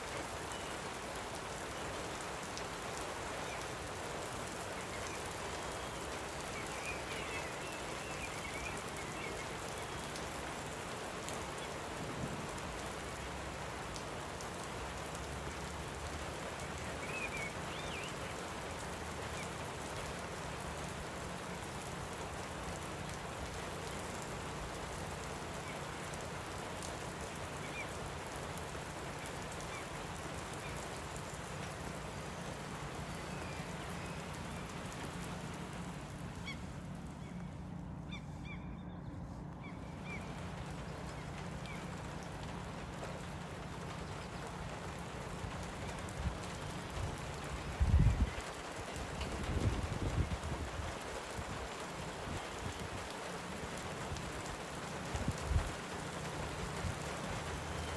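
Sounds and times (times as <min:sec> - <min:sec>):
light rain falling: 0:00.0 - 0:57.9
faint bird chirps: 0:36.3 - 0:41.8.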